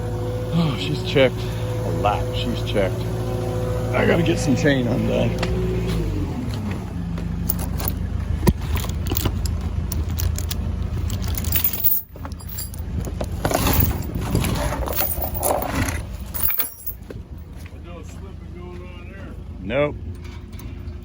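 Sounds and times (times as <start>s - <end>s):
engine running: 0.0s - 21.0s
heavy chain clinking and rattling: 7.4s - 17.1s.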